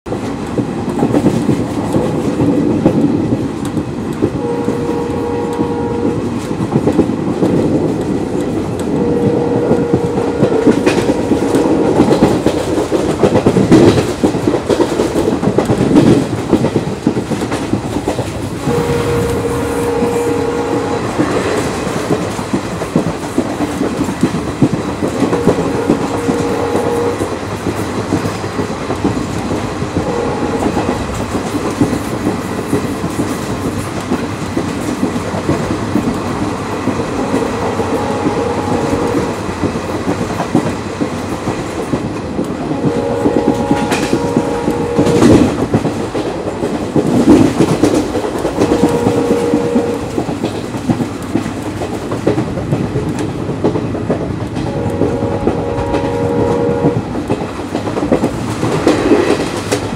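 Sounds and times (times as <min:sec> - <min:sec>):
train wheels clattering on rails: 0:00.0 - 0:59.9
locomotive horn blasts: 0:04.4 - 0:06.3, 0:08.9 - 0:12.2, 0:18.6 - 0:21.4, 0:25.2 - 0:27.3, 0:30.0 - 0:31.1, 0:37.2 - 0:39.4, 0:42.7 - 0:45.5, 0:48.4 - 0:50.2, 0:54.6 - 0:57.1.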